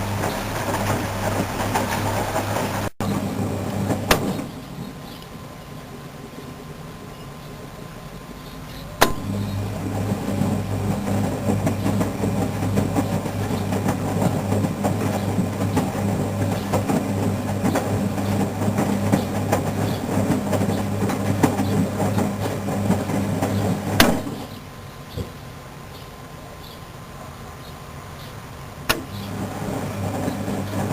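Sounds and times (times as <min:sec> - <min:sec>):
washing machine running: 0:00.0 - 0:04.8, 0:09.0 - 0:24.5, 0:28.9 - 0:30.9.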